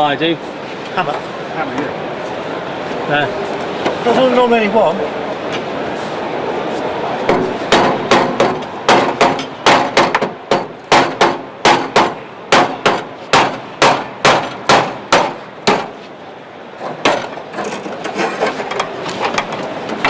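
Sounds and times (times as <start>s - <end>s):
hammer blows on steel panels: 7.3s - 16.0s.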